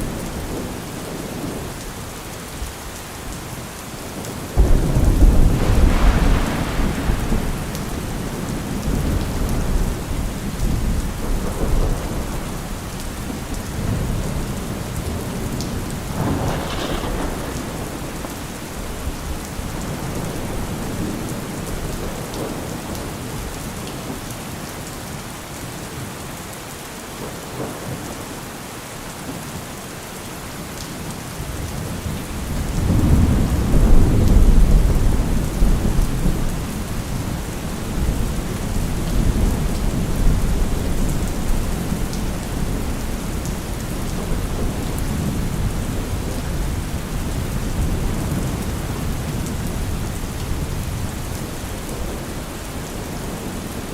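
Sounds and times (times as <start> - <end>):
heavy rain: 0.0 - 53.9.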